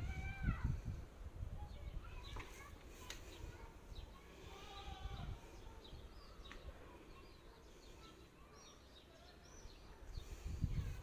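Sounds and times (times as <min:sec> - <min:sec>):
wind rumble: 0:00.0 - 0:02.7, 0:10.2 - 0:11.0
small birds chirping: 0:00.0 - 0:11.0.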